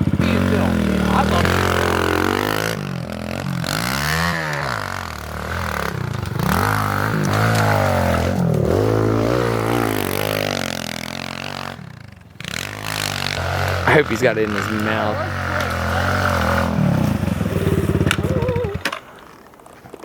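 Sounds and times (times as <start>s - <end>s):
pit bike engine revving: 0.0s - 19.5s.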